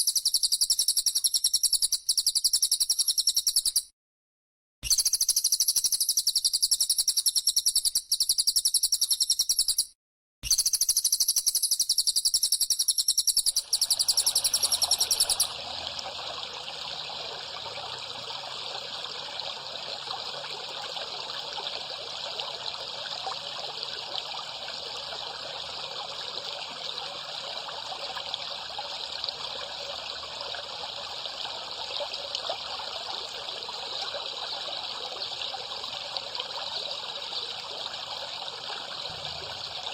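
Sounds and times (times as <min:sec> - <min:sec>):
bird buzzing trill: 0:12.3 - 0:15.6
water trickling and gurgling: 0:13.3 - 0:39.9.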